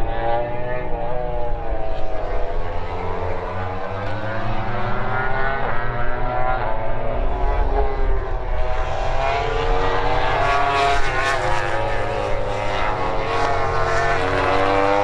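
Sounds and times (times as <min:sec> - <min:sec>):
racing motorcycle engines revving: 0:00.0 - 0:15.0.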